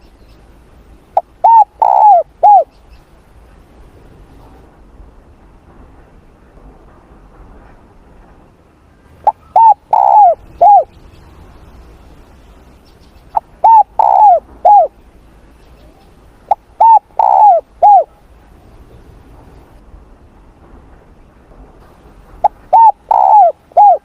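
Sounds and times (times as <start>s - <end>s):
dove cooing: 1.2s - 2.7s, 9.2s - 11.0s, 13.3s - 14.9s, 15.8s - 18.2s, 22.4s - 24.0s.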